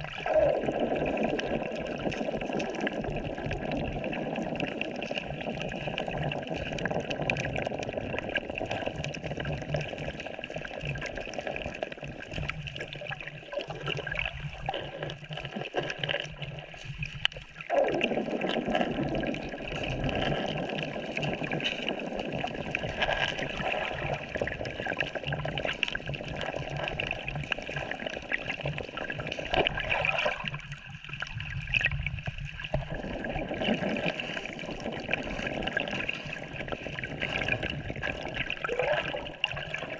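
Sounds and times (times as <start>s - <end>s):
sea water sloshing and gurgling: 0.0s - 39.9s
water trickling and bubbling: 0.0s - 39.9s.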